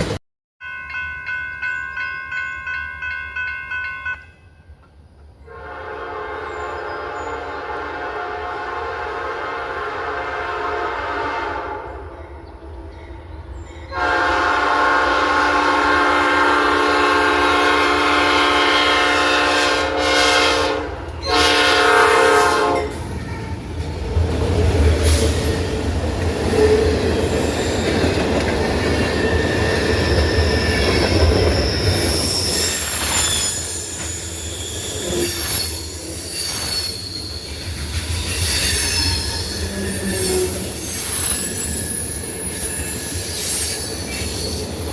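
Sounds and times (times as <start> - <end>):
locomotive horn blasts: 5.5 - 12.0, 13.9 - 23.0
wheel flange squeal: 29.1 - 44.9.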